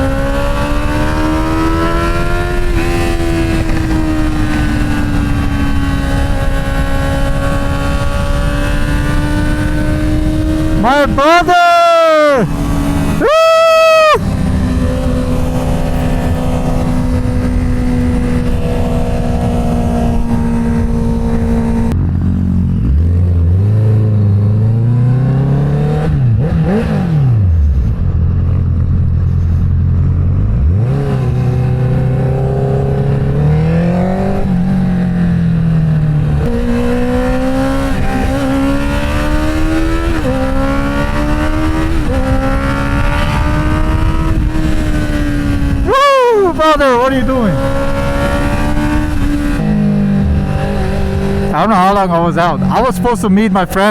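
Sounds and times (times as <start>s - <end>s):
car engine revving: 0.0s - 22.0s, 36.4s - 53.9s.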